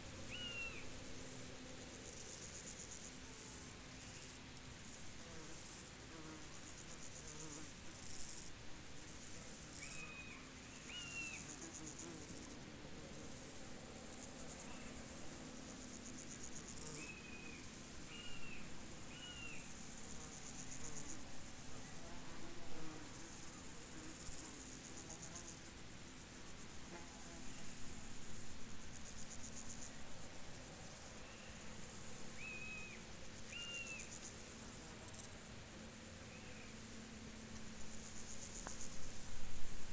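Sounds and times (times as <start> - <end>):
field insects trilling: 0.2 - 39.9.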